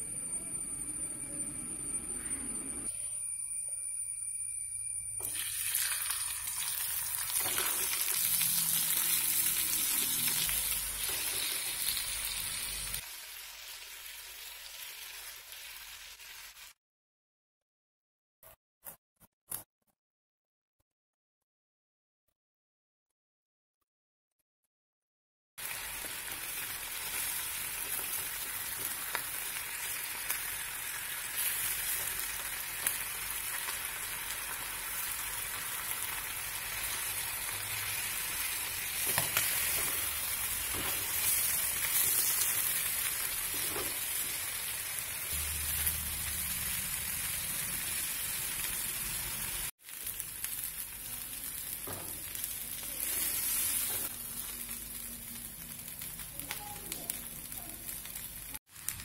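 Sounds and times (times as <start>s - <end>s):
chicken sizzling in a pot: 2.8s - 16.8s, 25.6s - 59.0s.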